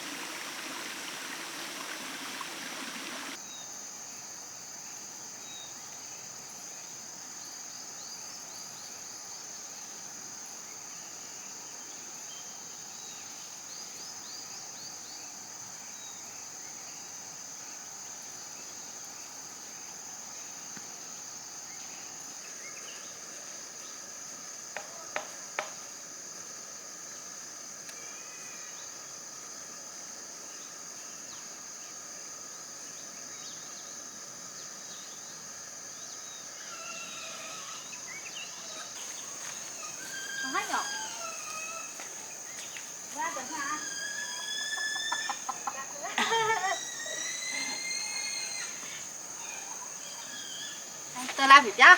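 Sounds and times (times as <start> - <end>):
insect chorus trilling: 0.0 - 51.9
faint bird chirps: 36.1 - 51.9.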